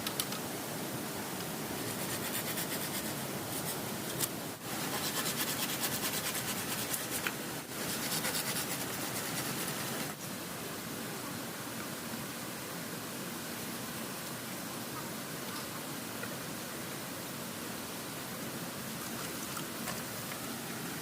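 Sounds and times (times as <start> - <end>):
river water rushing: 0.4 - 21.0
hand tool rasping wood: 4.8 - 10.1.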